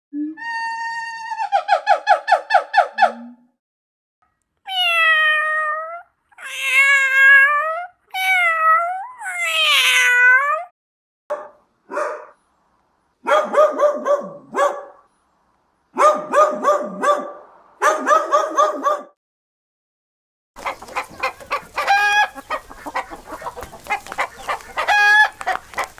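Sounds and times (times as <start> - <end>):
cat meowing: 4.7 - 10.7.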